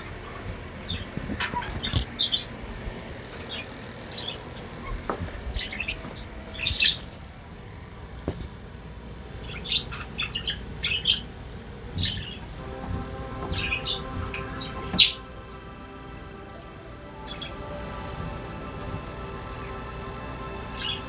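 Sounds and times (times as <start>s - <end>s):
budgerigars chirping: 0.2s - 2.5s, 9.4s - 11.3s, 11.9s - 15.3s, 17.2s - 19.8s, 20.4s - 21.0s.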